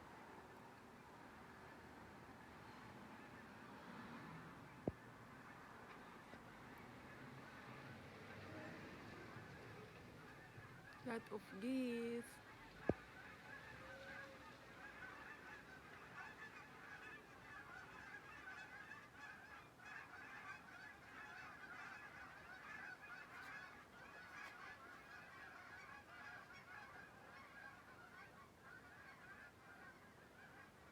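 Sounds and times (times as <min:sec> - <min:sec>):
geese honking: 0:13.1 - 0:30.9.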